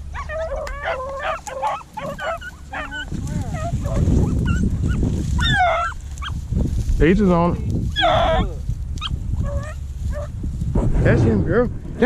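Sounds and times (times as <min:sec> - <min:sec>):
dogs baying and yelping: 0:00.0 - 0:06.5, 0:07.9 - 0:10.4
low rumbling noise: 0:00.0 - 0:12.0.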